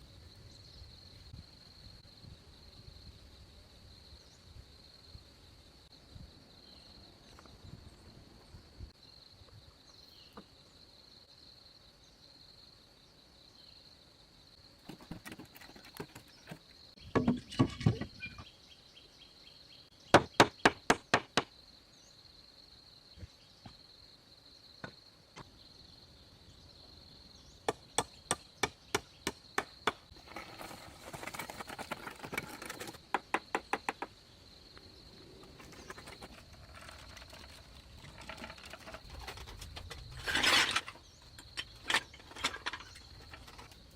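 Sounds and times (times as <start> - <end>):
hand tools striking wood: 14.9 - 18.1, 20.1 - 21.5, 27.7 - 30.1, 32.2 - 34.1
high insect drone: 18.1 - 31.8, 32.8 - 43.9
clattering: 35.6 - 43.8.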